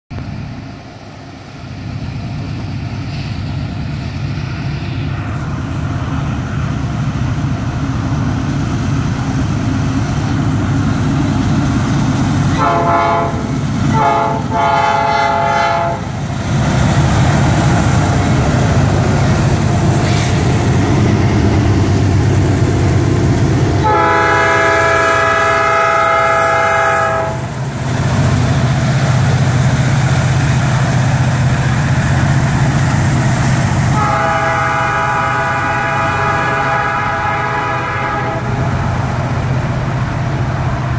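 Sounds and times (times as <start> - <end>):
diesel locomotive engine rumble: 0.1 - 40.9
locomotive air horn: 12.5 - 16.1, 23.8 - 27.5, 33.9 - 38.6.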